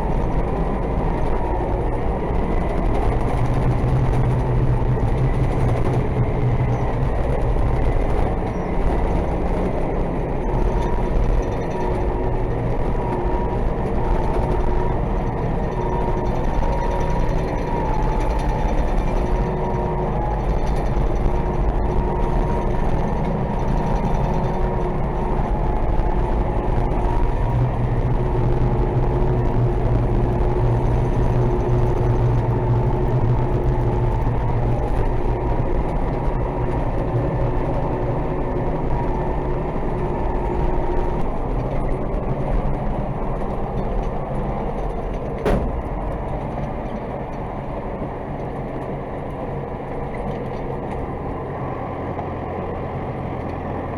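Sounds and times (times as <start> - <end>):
tractor diesel engine droning: 0.0 - 53.9
sharp knock: 45.4 - 45.9.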